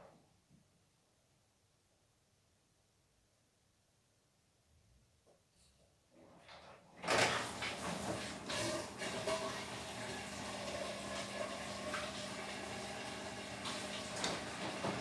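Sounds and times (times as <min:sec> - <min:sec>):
washing machine running: 0:07.0 - 0:15.0.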